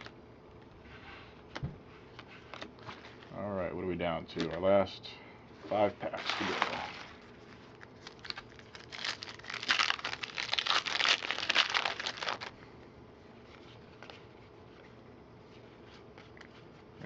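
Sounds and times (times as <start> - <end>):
foil wrapper crinkling: 6.1 - 12.6.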